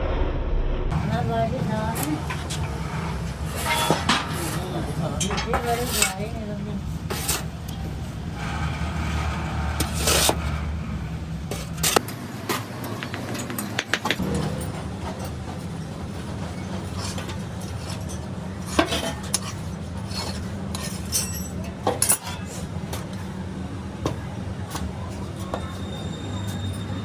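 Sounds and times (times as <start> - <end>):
low machine hum: 0.0 - 13.5, 14.2 - 27.0
metallic clinks and scrapes: 1.9 - 6.4, 13.1 - 23.3, 24.8 - 27.0.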